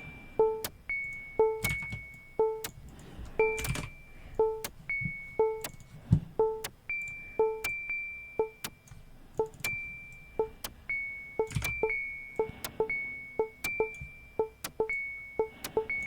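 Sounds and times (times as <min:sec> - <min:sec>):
high ringing tone: 0:09.4 - 0:16.0
sharp percussive clicks: 0:11.4 - 0:12.9.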